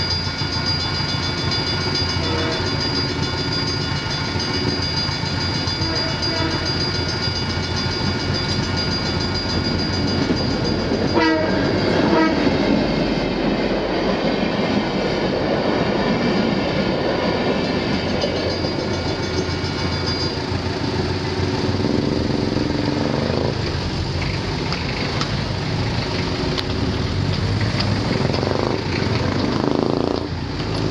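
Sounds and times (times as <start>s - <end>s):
crossing bells ringing: 0.0s - 13.4s, 17.3s - 22.7s
train wheels clattering on rails: 0.0s - 30.9s
locomotive horn: 2.1s - 2.9s, 5.8s - 6.8s, 11.1s - 12.6s.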